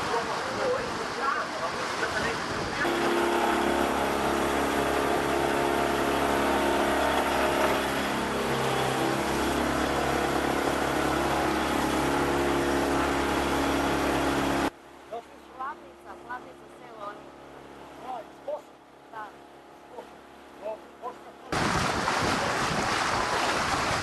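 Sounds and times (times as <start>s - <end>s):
water washing against hull: 0.0s - 14.7s, 21.5s - 24.0s
motorboat engine running: 2.7s - 24.0s.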